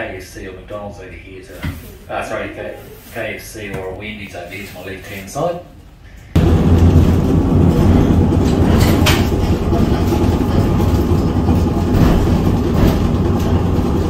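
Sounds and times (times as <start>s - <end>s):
tram rumbling on rails: 6.4s - 14.0s.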